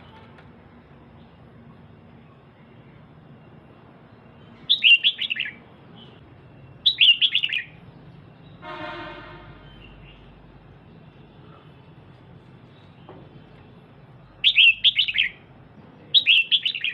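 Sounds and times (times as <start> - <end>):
bird rapid chirps: 4.2 - 8.6, 14.2 - 15.5, 16.1 - 16.9.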